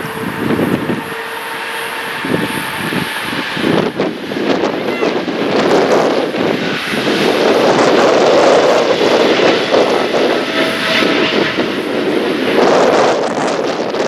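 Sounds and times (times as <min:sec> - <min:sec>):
jet engines roaring: 0:00.0 - 0:14.0
wind gusting over microphone: 0:00.0 - 0:14.0.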